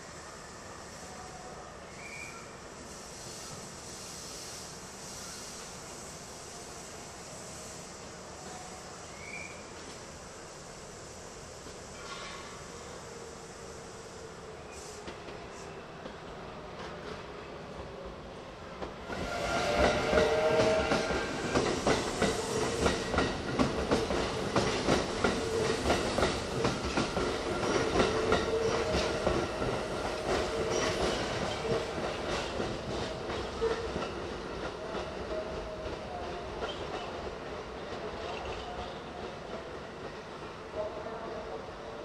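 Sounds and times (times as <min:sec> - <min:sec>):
train wheels clacking over rail joints: 0:18.8 - 0:37.2.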